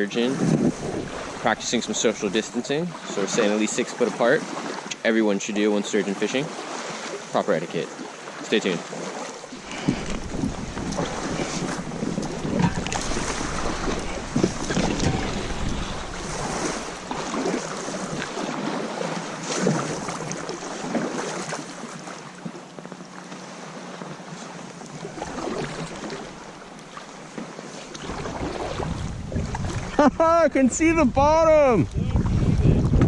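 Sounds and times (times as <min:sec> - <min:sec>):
water lapping against kayak hull: 0:00.0 - 0:33.0
wind buffeting microphone: 0:00.3 - 0:02.5, 0:09.5 - 0:20.5, 0:28.0 - 0:33.0.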